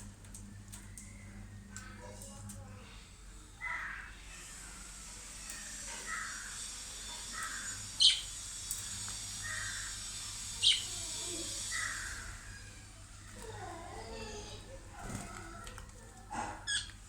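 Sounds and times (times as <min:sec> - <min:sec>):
loud high-pitched chirps: 0:07.5 - 0:08.4
lovebirds chirping: 0:09.3 - 0:15.6.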